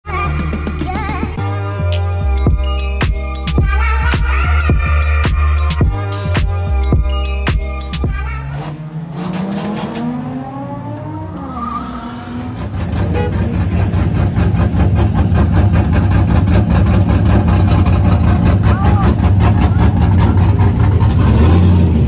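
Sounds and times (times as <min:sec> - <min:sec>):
loud steady engine rumble: 0:00.0 - 0:10.2, 0:10.8 - 0:22.0
beat-driven music: 0:00.1 - 0:08.6
car engines revving: 0:03.2 - 0:22.0.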